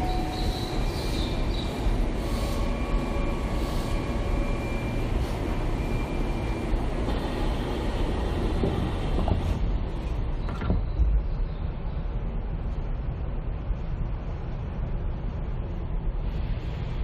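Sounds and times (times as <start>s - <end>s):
electric inverter whine: 0.0s - 9.1s
train low rumble: 0.0s - 17.0s.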